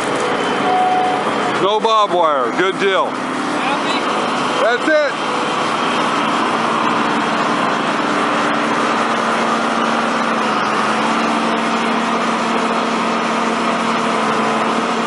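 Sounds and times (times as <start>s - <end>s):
engine droning steadily: 0.0s - 15.0s.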